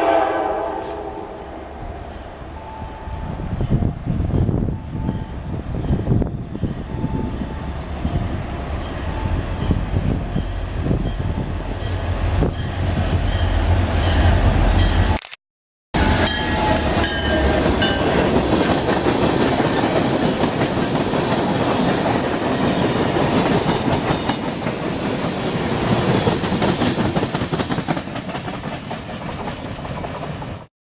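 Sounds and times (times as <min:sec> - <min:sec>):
train wheels clacking on rails: 0:16.0 - 0:30.7.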